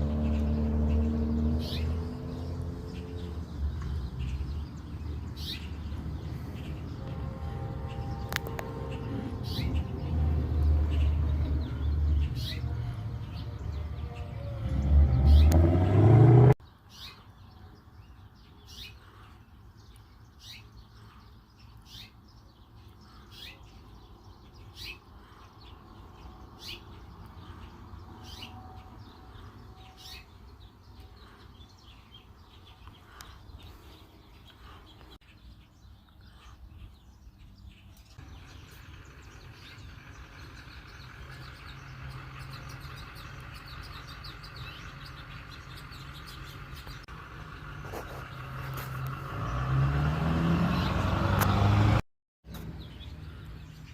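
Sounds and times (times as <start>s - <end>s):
birds chirping: 0.0s - 53.9s
loud low rumble rising in pitch: 5.8s - 16.6s.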